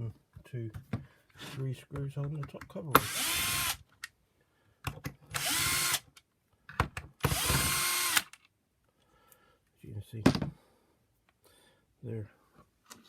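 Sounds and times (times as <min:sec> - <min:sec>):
power driver motor whirring: 0:03.0 - 0:03.8, 0:05.4 - 0:06.0, 0:07.3 - 0:08.3.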